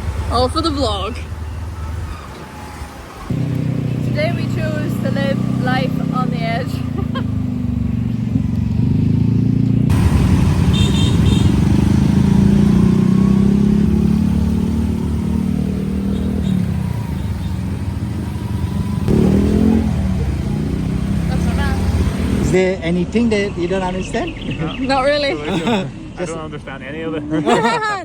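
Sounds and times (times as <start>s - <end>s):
road and wind noise: 0.0s - 28.0s
scooter engine running: 3.3s - 22.6s.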